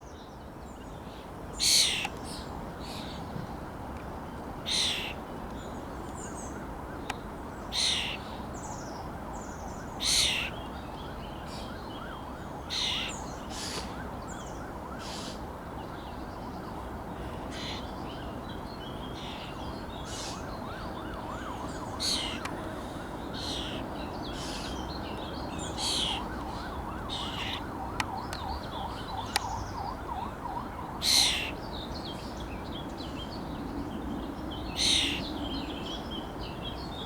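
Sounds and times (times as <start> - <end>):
starlings rasping calls: 4.7 - 5.2, 7.7 - 8.3, 10.0 - 10.6, 12.7 - 14.0, 15.0 - 15.4, 17.5 - 17.9, 19.2 - 20.6, 21.7 - 29.8, 31.0 - 31.6, 34.7 - 35.3.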